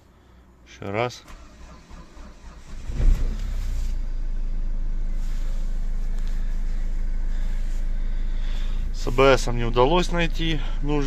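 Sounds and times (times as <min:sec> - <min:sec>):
starter cranking engine: 0:01.3 - 0:03.6
diesel engine idling: 0:01.4 - 0:11.0.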